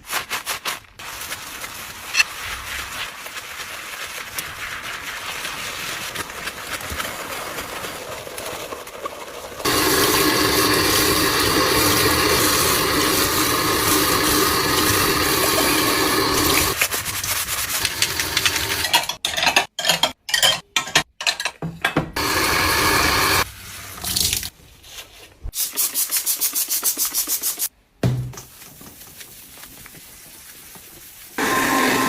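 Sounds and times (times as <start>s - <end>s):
tap water running into sink: 9.7s - 16.8s, 17.8s - 18.9s.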